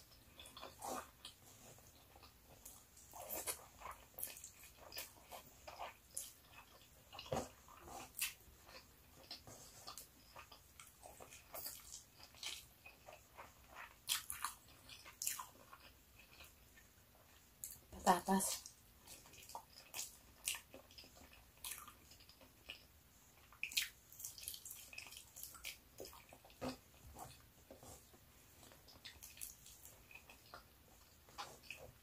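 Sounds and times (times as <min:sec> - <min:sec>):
chewing: 0:00.0 - 0:32.0.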